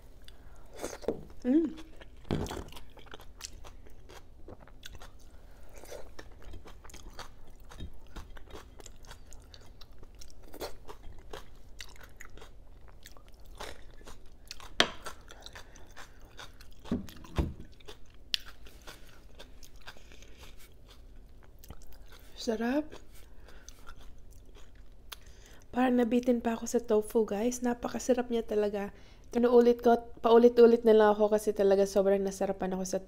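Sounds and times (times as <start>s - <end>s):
chewing food: 0.2s - 25.7s.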